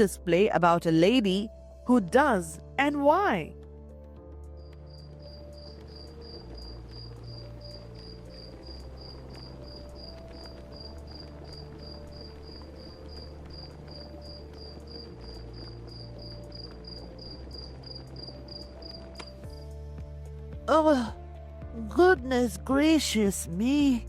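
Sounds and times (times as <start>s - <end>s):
cricket chirping: 4.6s - 19.8s.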